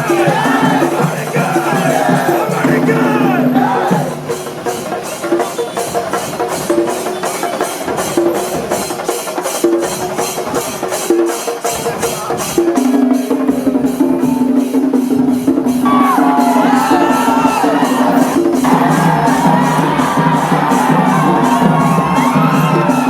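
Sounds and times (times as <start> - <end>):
drums: 0.0 - 23.0
hand cymbals clashing: 0.0 - 23.0
held wind instrument notes: 12.2 - 23.0.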